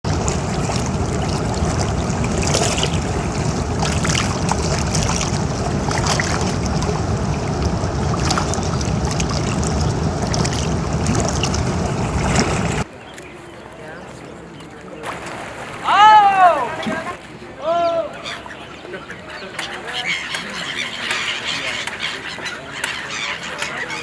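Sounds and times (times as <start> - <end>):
low rumble: 0.0 - 12.8
river water rushing: 0.0 - 12.9, 15.0 - 17.3.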